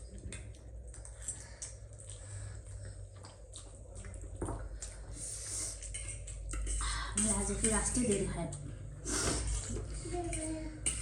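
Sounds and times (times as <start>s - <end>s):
person chewing noodles wetly: 0.0s - 6.7s.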